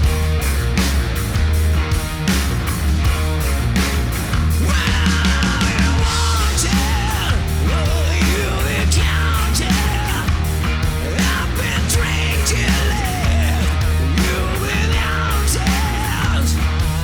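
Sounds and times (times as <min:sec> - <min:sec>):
hard rock band playing: 0:00.0 - 0:17.0
lead guitar line bending: 0:00.0 - 0:17.0.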